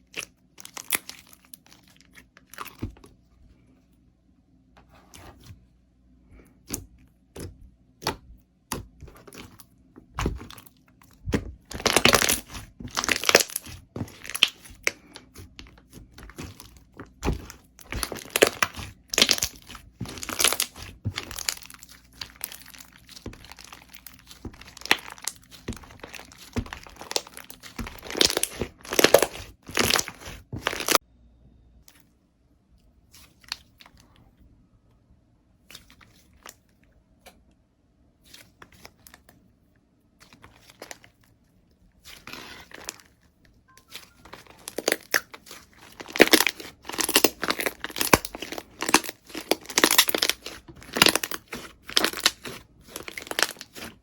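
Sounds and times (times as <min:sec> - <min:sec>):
slime crackling and crunching: 0:00.0 - 0:03.0, 0:07.4 - 0:31.0, 0:42.0 - 0:54.0.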